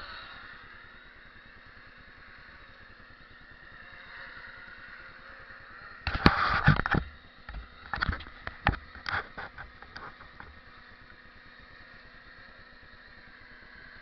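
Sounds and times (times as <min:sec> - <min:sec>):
quadcopter knocking against ground: 0:05.8 - 0:11.2.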